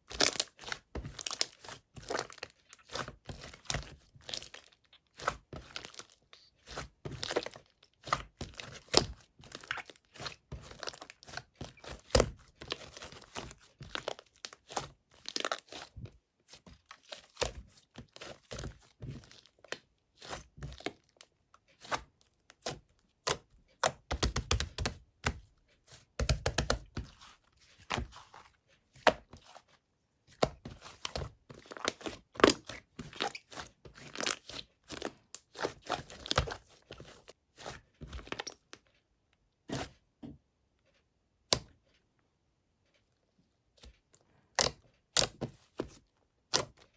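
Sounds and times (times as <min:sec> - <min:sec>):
hands squishing slime: 0:00.0 - 0:29.7, 0:30.3 - 0:38.7, 0:44.5 - 0:46.9.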